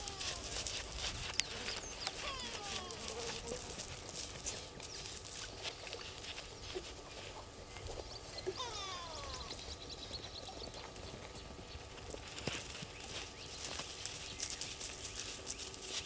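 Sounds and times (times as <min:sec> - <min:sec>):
clicks and rustles in dry grass: 0:00.0 - 0:16.0
bird descending whistled call: 0:08.6 - 0:09.8.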